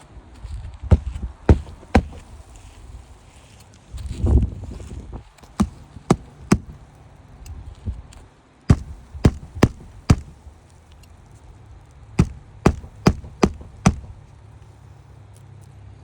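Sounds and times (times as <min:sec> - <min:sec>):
hammer striking shingle roof: 0:00.9 - 0:02.5, 0:05.6 - 0:06.9, 0:08.7 - 0:10.5, 0:12.2 - 0:14.3.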